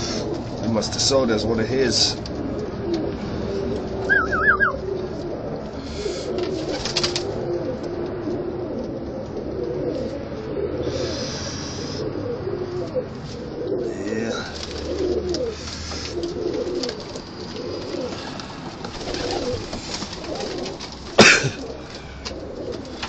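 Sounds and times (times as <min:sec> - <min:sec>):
pigeons cooing: 0:00.0 - 0:23.0
high warbling chirp: 0:04.0 - 0:04.9.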